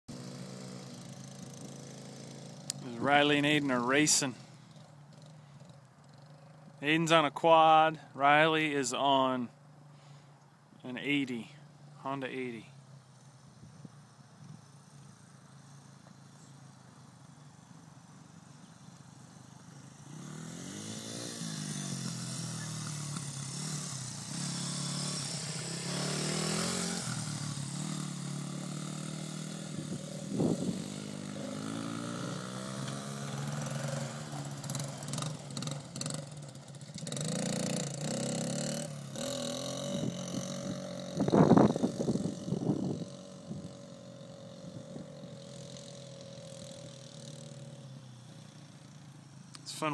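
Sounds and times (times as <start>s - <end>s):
dirt bike engine revving: 0.1s - 9.4s, 19.7s - 49.0s
quad engine revving: 19.9s - 47.8s.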